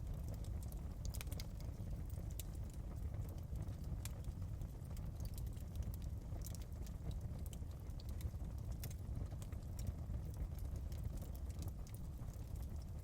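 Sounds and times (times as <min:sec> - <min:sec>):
fireplace fire crackling: 0:00.0 - 0:13.0
low rumble of flames: 0:00.0 - 0:13.0.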